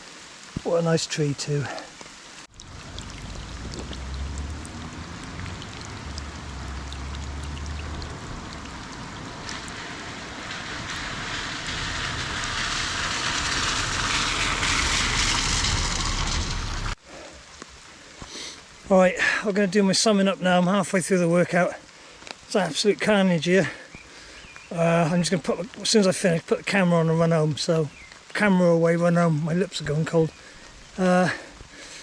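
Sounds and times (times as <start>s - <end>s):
rain on leaves: 0.0s - 32.0s
low rumble: 2.5s - 17.0s.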